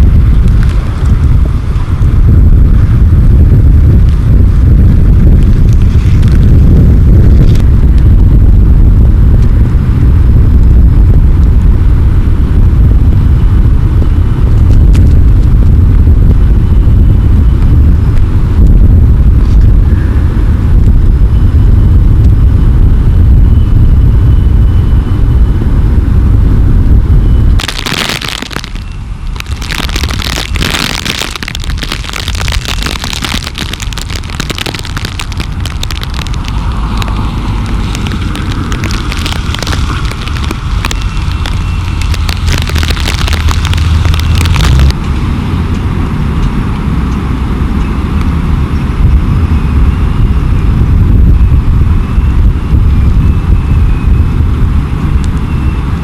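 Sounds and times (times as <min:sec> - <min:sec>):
crackling and popping: 0:00.0 - 0:22.5, 0:26.8 - 0:45.1
wind buffeting microphone: 0:00.0 - 0:56.0.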